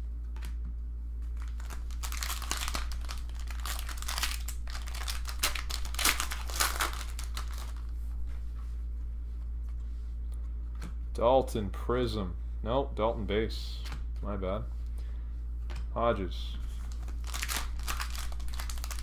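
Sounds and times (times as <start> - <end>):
foil wrapper crinkling and tearing: 1.4 - 7.9, 16.8 - 19.0.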